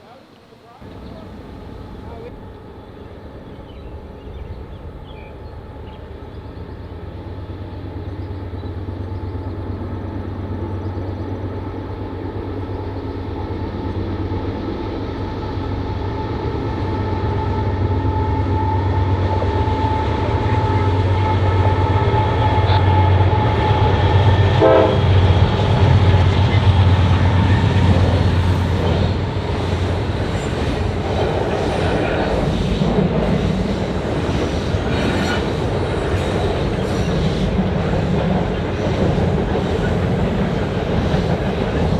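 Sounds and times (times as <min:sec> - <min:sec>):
train rumbling: 0:00.0 - 0:41.9
train horn: 0:15.2 - 0:28.1.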